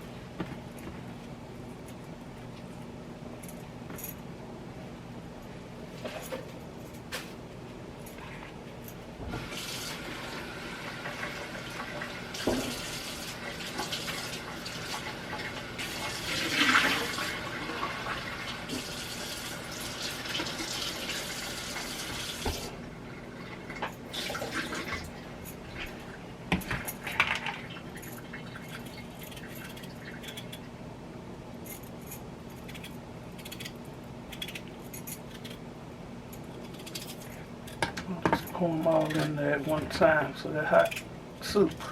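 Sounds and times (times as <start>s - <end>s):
kitchen tap running: 9.4s - 22.8s, 23.6s - 25.2s.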